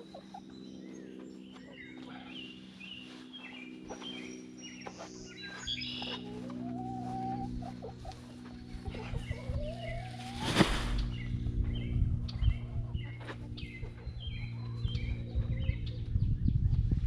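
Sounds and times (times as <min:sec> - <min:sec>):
chickens clucking: 0:00.0 - 0:16.1
birds chirping: 0:00.0 - 0:17.0
steady low hum: 0:00.0 - 0:17.0.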